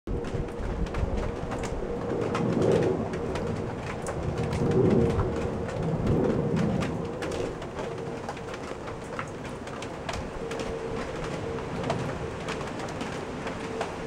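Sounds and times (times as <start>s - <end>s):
rain falling: 0.1s - 14.0s.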